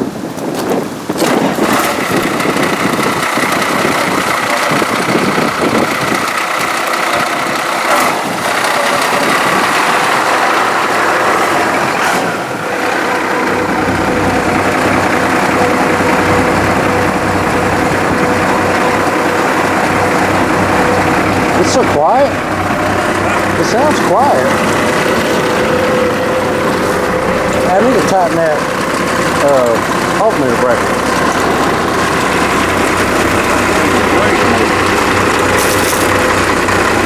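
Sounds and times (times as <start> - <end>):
engine idling: 1.0 - 37.0
deep low rumble: 9.2 - 37.0.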